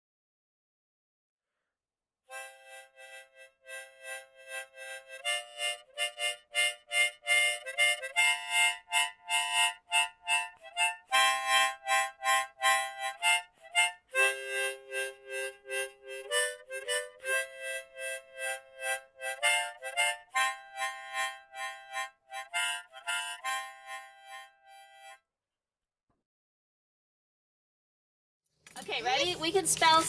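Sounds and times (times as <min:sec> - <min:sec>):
harmonica playing quick tune: 0:02.3 - 0:25.2.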